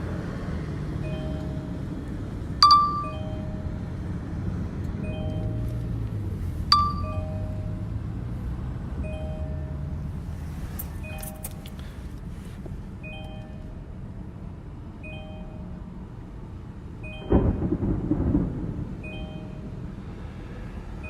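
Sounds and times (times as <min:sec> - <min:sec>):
steady low rumble: 0:00.0 - 0:21.0
short repeated tones: 0:02.6 - 0:03.8, 0:06.7 - 0:07.7.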